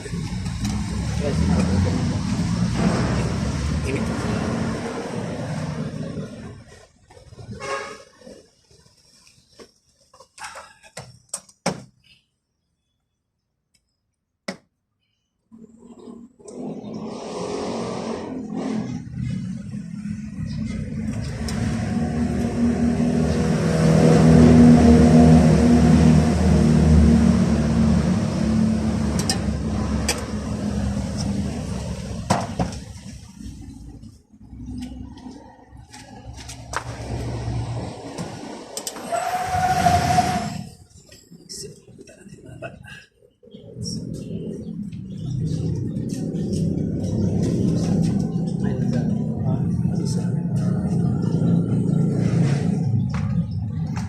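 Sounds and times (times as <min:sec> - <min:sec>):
vehicle engine running: 0:44.2 - 0:54.0.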